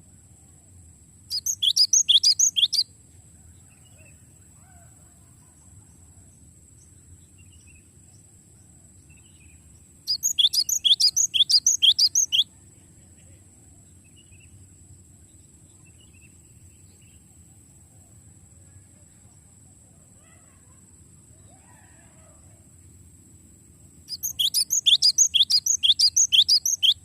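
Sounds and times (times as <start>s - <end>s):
steady low hiss: 0.0s - 20.2s, 22.4s - 27.0s
faint bird chirps: 1.3s - 22.7s, 24.0s - 27.0s
bird rapid rolling trill: 10.1s - 12.4s, 24.1s - 27.0s.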